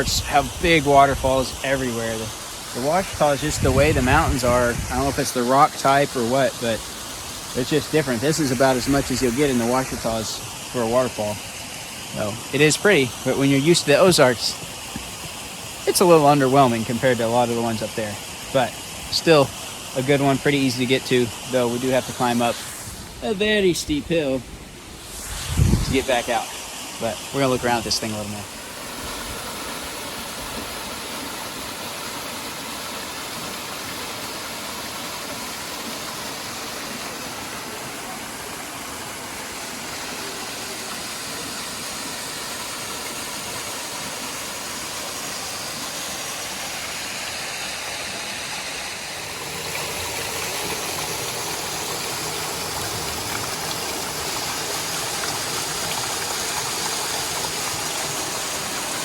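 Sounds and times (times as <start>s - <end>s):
water rushing over rock: 0.0s - 59.0s.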